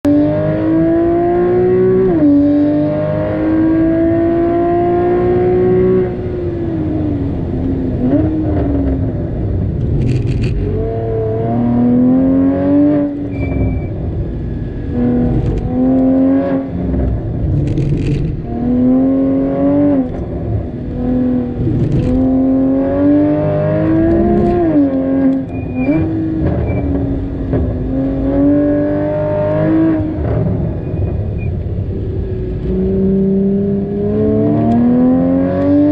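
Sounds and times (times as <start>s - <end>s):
car engine revving hard: 0.1s - 6.4s, 14.9s - 30.7s, 32.7s - 35.9s.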